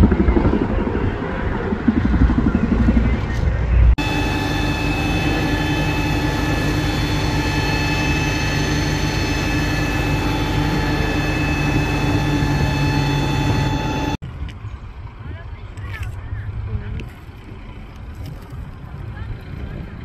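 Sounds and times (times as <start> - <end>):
heavy engine running: 0.0 - 14.2
high whining tones: 2.5 - 14.2.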